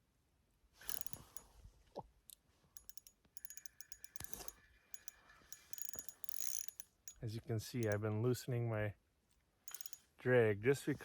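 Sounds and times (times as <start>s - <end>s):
fishing reel drag clicking: 0.8s - 1.5s, 2.8s - 7.2s, 7.8s - 8.0s, 9.7s - 10.0s.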